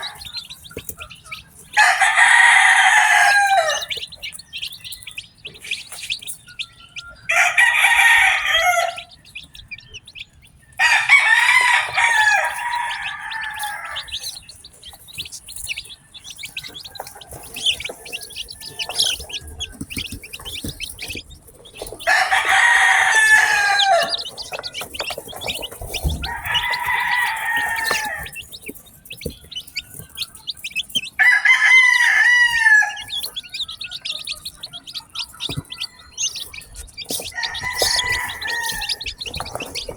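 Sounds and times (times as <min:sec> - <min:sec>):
rooster crowing: 0:00.0 - 0:00.5, 0:01.8 - 0:04.0, 0:07.2 - 0:09.2, 0:10.8 - 0:14.5, 0:16.3 - 0:19.8, 0:21.8 - 0:28.5, 0:31.2 - 0:34.2, 0:35.2 - 0:39.9
chicks peeping: 0:00.0 - 0:39.9.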